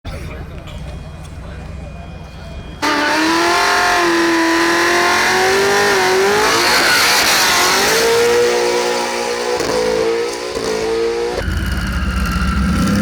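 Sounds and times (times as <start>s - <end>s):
car engine at high revs: 2.8s - 13.0s.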